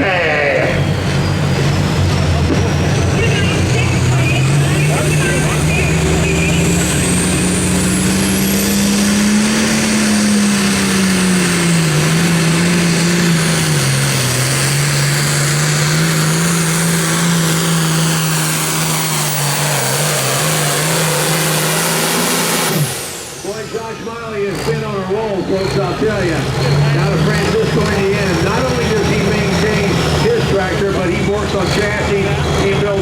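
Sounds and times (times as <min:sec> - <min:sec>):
diesel engine running under load: 0:00.0 - 0:33.0.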